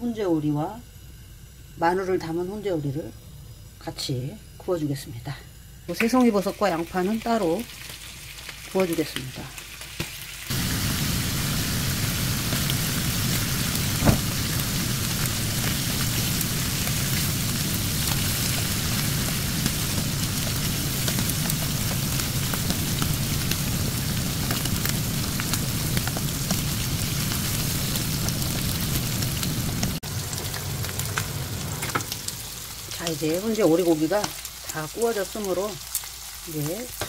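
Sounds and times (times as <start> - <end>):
meat sizzling in a frying pan: 5.9 - 37.0.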